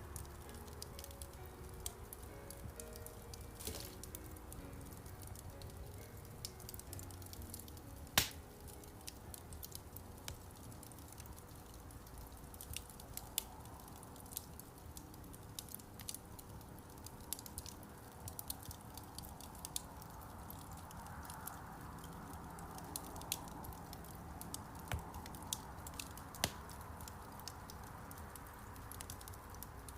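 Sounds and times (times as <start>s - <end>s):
wood fire crackling: 0.0s - 29.9s
loud pop of fire: 8.2s - 8.4s.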